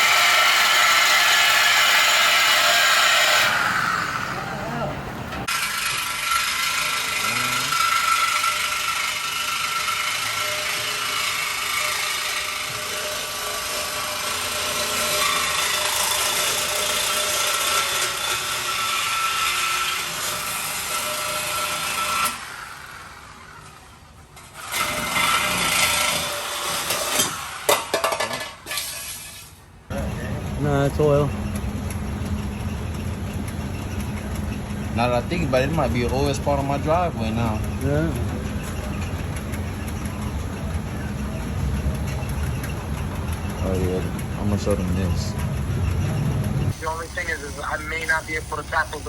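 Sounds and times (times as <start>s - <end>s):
power tool cutting steel pipe: 0.0s - 4.4s, 5.4s - 23.8s, 24.4s - 29.0s.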